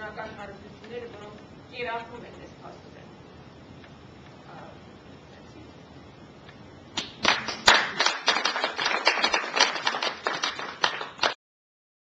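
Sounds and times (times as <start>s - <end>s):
audience applause: 7.2s - 11.4s.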